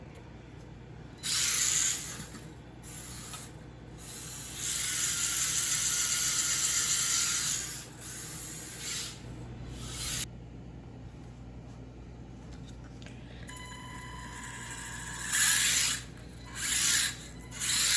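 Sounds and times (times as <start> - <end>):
toy car electric motor whirring: 1.2 - 10.3, 13.9 - 17.9.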